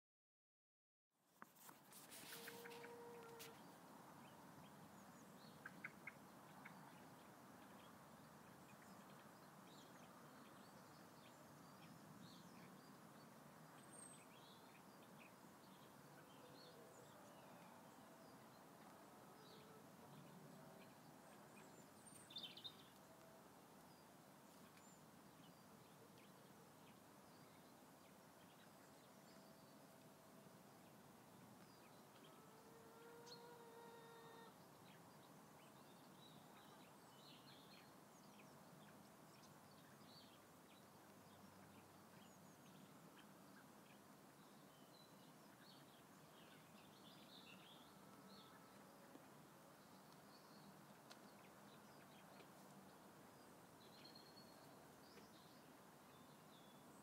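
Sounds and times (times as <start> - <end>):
faint outdoor hiss: 1.2 - 57.0.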